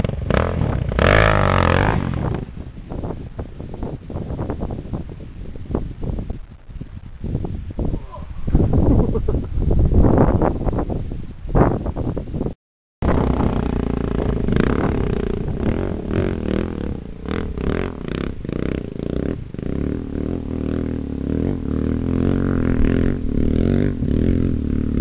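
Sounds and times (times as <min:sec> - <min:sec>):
dirt bike engine revving: 0:00.0 - 0:03.0, 0:13.0 - 0:25.0.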